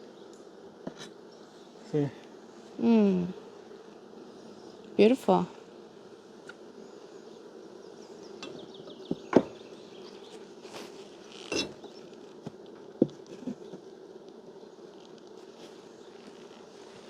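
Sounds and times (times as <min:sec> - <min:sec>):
bees buzzing: 0:00.0 - 0:17.0
knocks on wooden hive frames: 0:08.4 - 0:09.6, 0:12.4 - 0:13.8.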